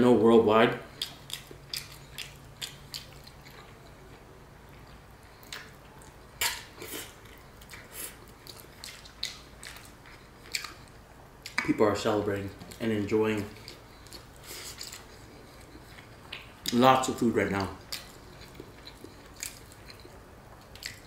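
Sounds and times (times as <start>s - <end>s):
chewing: 0.9s - 21.0s
wet mouth clicks and smacks: 1.0s - 3.5s, 5.4s - 7.9s, 8.5s - 9.9s, 10.5s - 11.7s.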